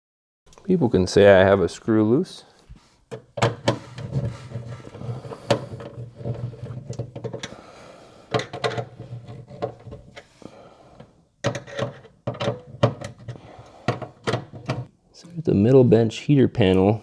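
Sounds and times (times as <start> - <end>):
knocks and clicks of parts: 3.1 - 7.6, 8.3 - 10.3, 11.0 - 14.9.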